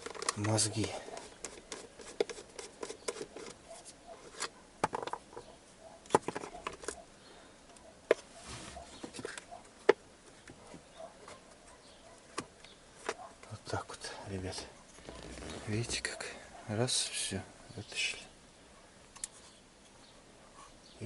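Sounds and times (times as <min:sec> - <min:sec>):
plastic clicks and knocks: 0:04.8 - 0:05.4.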